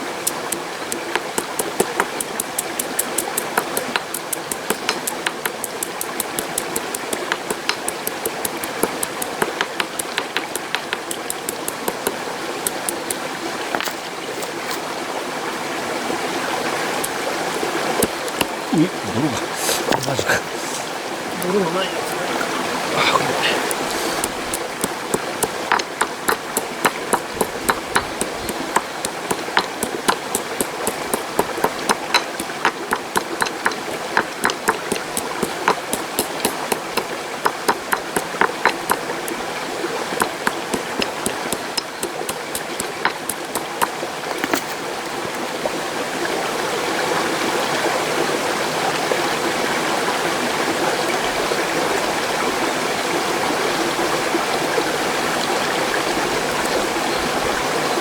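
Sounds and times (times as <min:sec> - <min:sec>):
mountain stream rushing: 0:00.0 - 0:58.0
sharp uneven knocks: 0:00.3 - 0:14.0, 0:23.7 - 0:39.4, 0:40.1 - 0:44.8.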